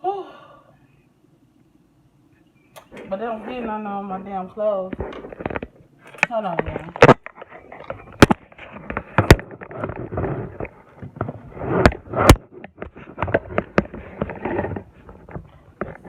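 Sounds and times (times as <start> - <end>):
rubbing and rustling: 6.4 - 16.0.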